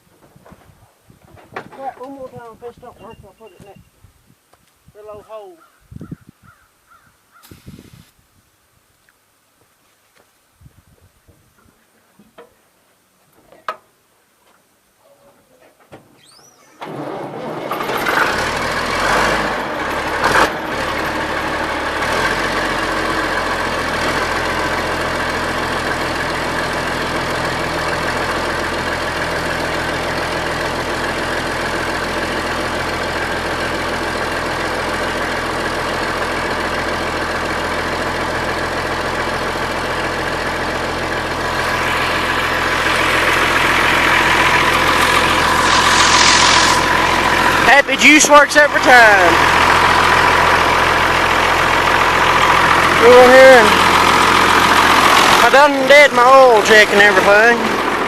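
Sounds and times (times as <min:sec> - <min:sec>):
tractor diesel engine starting: 0:16.2 - 0:58.0.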